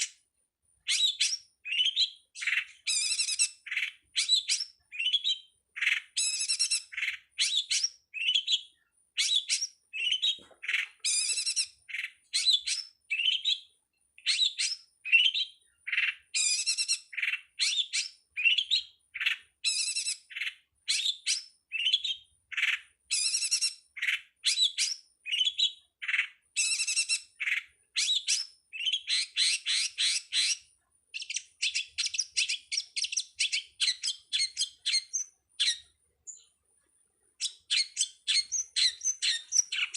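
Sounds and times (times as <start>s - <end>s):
bird song chirps and trills: 0.0s - 39.9s.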